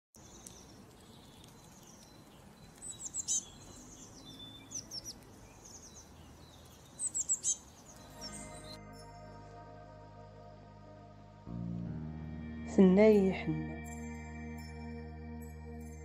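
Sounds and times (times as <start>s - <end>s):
birds chirping: 0.2s - 9.7s.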